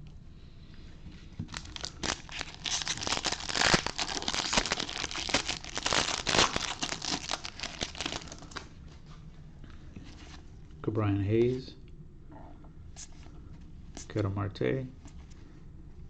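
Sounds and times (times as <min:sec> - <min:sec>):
foil wrapper crinkling and tearing: 0:01.5 - 0:08.7.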